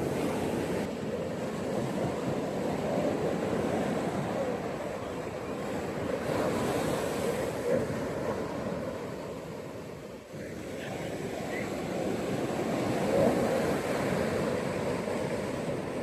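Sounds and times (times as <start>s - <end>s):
ocean waves breaking on beach: 0.0s - 16.0s.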